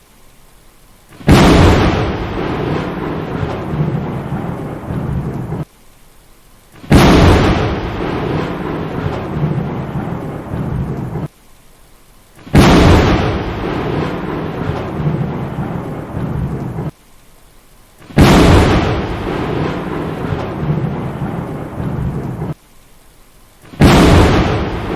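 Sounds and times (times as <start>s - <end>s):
rain: 0.0s - 24.9s
loud thunderclap: 1.2s - 5.7s, 6.8s - 11.3s, 12.4s - 17.0s, 18.0s - 22.6s, 23.6s - 24.9s
rumbling thunder: 1.2s - 5.7s, 6.8s - 11.3s, 12.4s - 17.0s, 18.0s - 22.6s, 23.6s - 24.9s.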